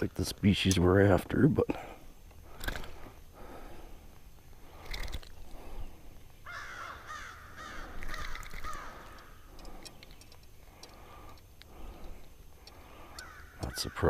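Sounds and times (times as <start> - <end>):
bird calling: 4.6 - 14.0.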